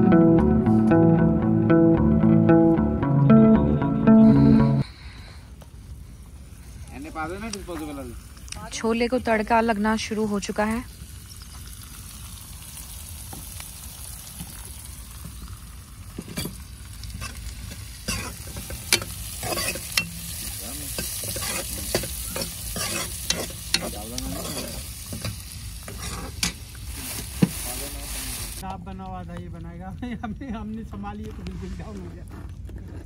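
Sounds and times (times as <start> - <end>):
vegetables sizzling in hot oil: 6.3 - 28.6
ladle clicking and scraping pan: 17.2 - 26.6.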